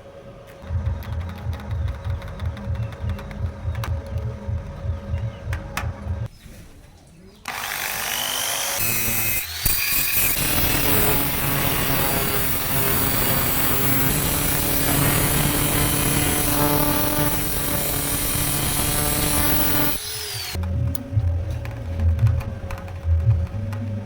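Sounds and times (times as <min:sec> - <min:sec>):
power tool on metal hissing: 0:07.6 - 0:20.6.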